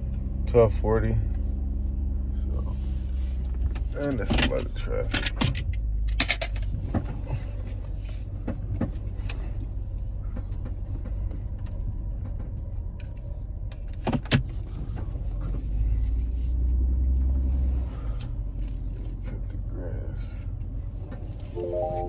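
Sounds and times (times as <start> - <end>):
car engine and road rumble: 0.0 - 21.6.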